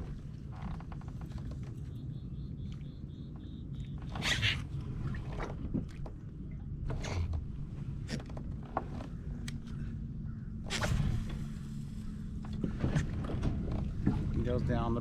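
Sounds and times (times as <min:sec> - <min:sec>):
fishing tackle clicks and creaks: 0:08.0 - 0:09.9.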